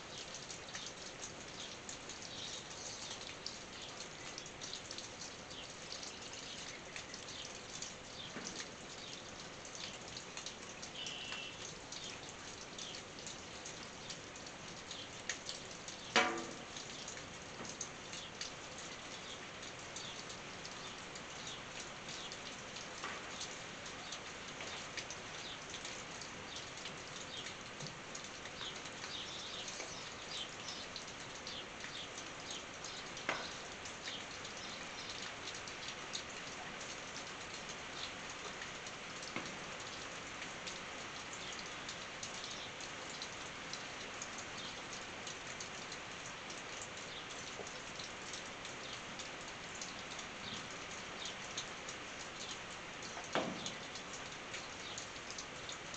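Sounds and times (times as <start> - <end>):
rain on a tin roof: 0.0 - 55.9
loud single drops: 16.2 - 16.7.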